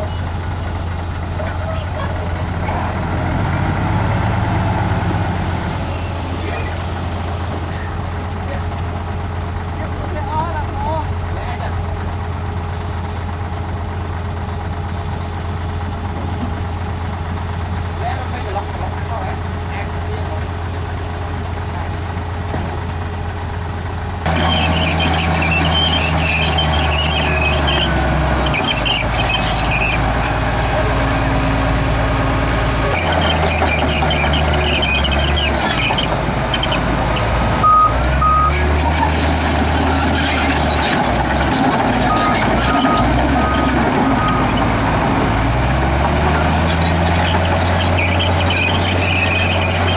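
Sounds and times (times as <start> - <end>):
heavy diesel engine humming: 0.0 - 49.9
high metallic squeaks and squeals: 5.1 - 7.9, 24.3 - 30.4, 32.9 - 44.8, 46.2 - 49.9
reversing alarm beep: 37.6 - 38.5.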